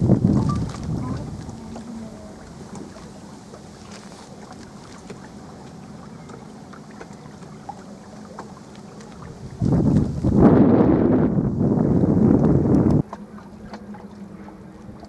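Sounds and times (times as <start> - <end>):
wind buffeting microphone: 0.0 - 3.5, 9.1 - 15.0
electric boat motor hum: 0.0 - 15.0.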